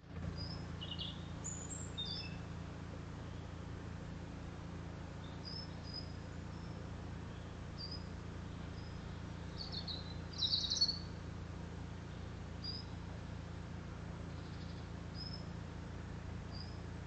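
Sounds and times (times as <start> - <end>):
steady low hum: 0.0 - 17.0
songbird chirping: 0.1 - 2.6, 3.2 - 3.7, 5.1 - 11.3, 12.0 - 13.4, 14.1 - 15.6, 16.3 - 17.0.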